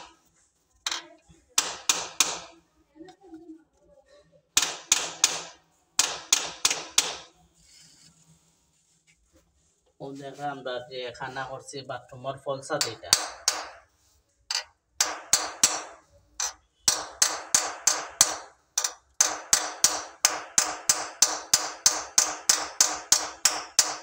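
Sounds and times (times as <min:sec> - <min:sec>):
hammer striking: 0:00.9 - 0:02.6, 0:04.6 - 0:07.3, 0:12.8 - 0:13.9, 0:14.5 - 0:24.0.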